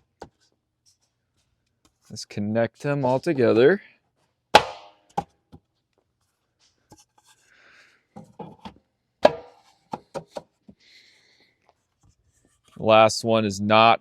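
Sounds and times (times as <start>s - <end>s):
wooden pickets knocking: 4.6s - 5.3s, 9.2s - 10.4s.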